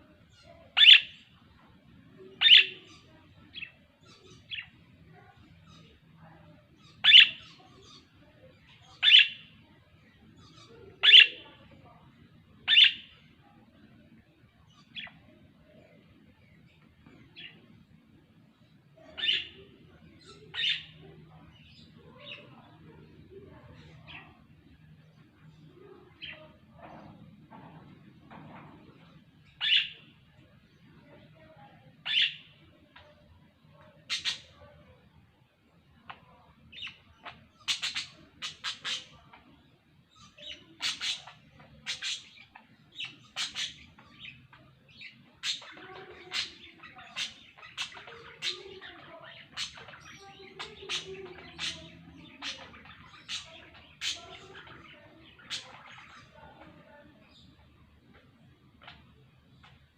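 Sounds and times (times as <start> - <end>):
small birds chirping: 0.0 - 59.9
budgerigars chirping: 36.9 - 39.2, 40.2 - 44.4.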